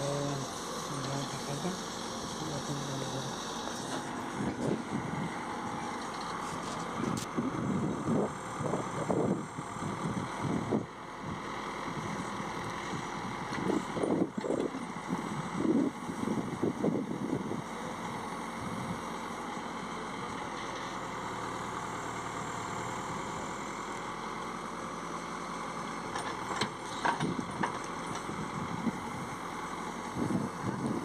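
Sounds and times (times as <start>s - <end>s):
heavy diesel machinery engines: 0.0s - 31.0s.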